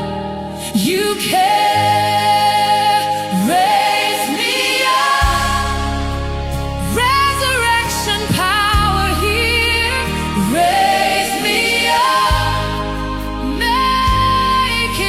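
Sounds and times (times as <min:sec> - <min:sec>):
choir-like voices: 0:00.0 - 0:15.0
worship music with singing: 0:00.0 - 0:15.0
sustained keyboard chords and bass: 0:05.1 - 0:15.0.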